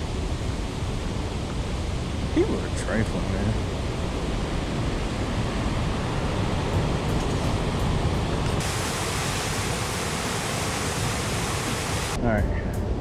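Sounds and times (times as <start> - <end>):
river rapids rushing: 5.1 - 12.2.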